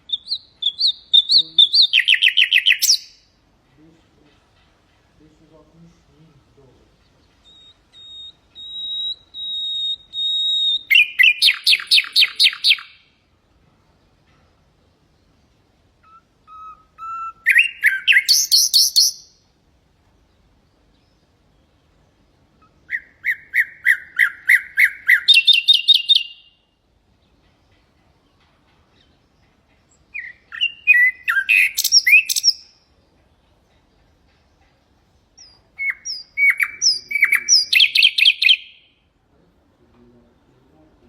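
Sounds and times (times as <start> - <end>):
nightingale singing: 0.0 - 39.2.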